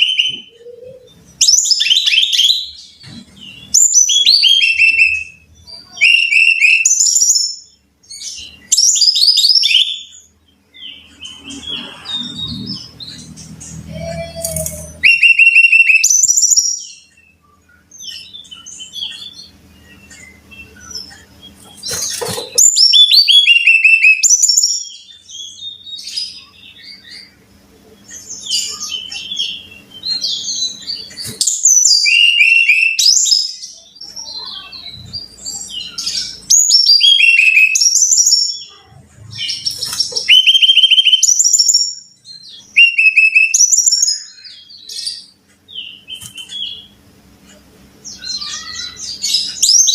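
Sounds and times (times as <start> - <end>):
bird singing whistled notes: 3.6 - 7.7, 13.9 - 17.4, 22.7 - 26.4, 28.5 - 34.6, 35.6 - 38.7, 39.6 - 45.0.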